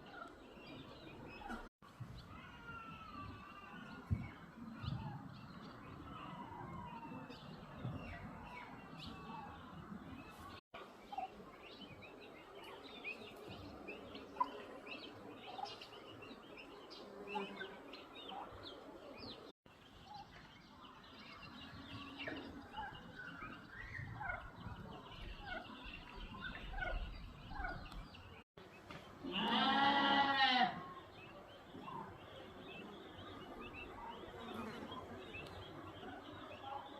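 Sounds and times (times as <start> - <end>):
small birds chirping: 0.0 - 36.9.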